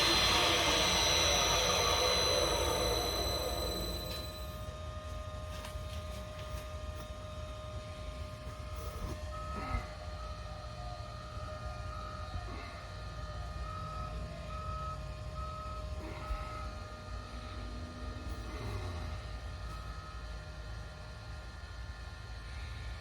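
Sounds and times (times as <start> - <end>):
repeating electronic beep: 0.0 - 4.7
machine hum and rumble: 0.0 - 23.0.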